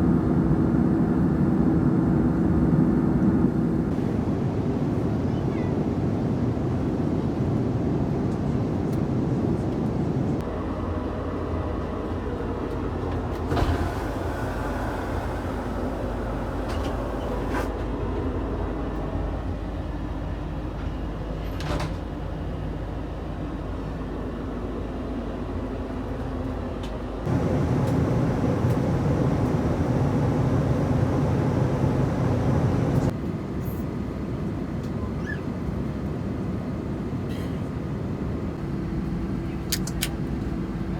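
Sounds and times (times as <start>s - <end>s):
airliner cabin engine rumble: 0.1s - 22.0s, 27.1s - 33.2s.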